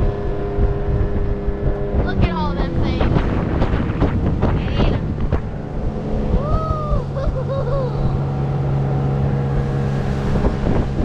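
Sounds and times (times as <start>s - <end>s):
boat motor humming: 0.0s - 11.0s
wind and water rushing: 0.0s - 11.0s
wavering pitched sound: 1.6s - 10.3s.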